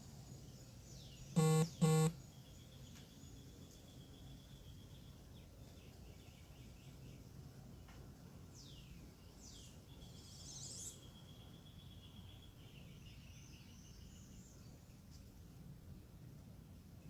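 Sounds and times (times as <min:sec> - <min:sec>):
bird chirps: 0:01.0 - 0:05.1
buzzy bird call: 0:01.4 - 0:02.1
steady high trill: 0:01.4 - 0:02.1.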